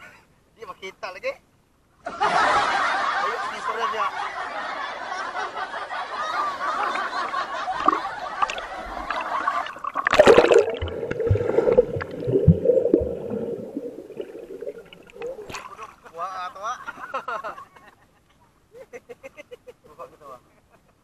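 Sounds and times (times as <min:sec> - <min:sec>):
sea water splashing: 0:06.5 - 0:16.0
bubbles: 0:07.7 - 0:15.8
muffled underwater gurgling: 0:07.8 - 0:15.6
loud splash: 0:07.8 - 0:15.8
low thumps: 0:10.0 - 0:15.4.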